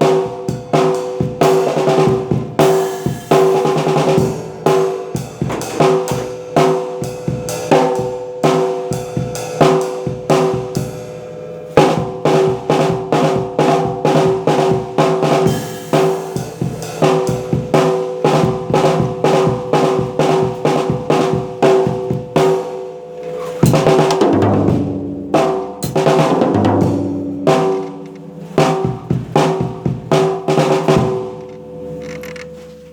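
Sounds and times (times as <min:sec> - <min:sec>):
drum kit beat: 0:00.0 - 0:32.9
tom fill: 0:23.6 - 0:32.9.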